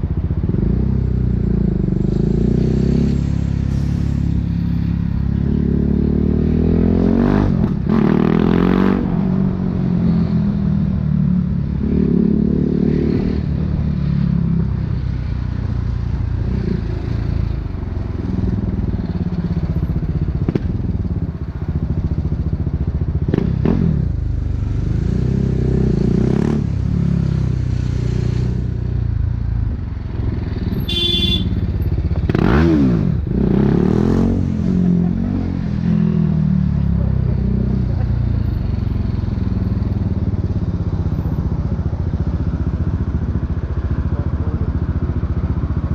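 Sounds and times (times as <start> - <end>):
motorcycle engine revving: 16.4 - 45.9.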